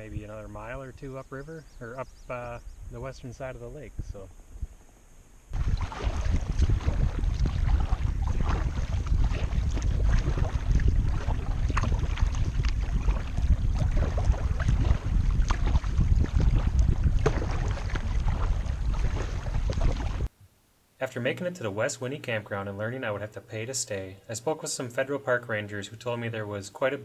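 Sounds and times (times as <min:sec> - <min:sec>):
wind buffeting microphone: 0:00.0 - 0:04.9, 0:05.6 - 0:20.3
water lapping against kayak: 0:05.6 - 0:20.3.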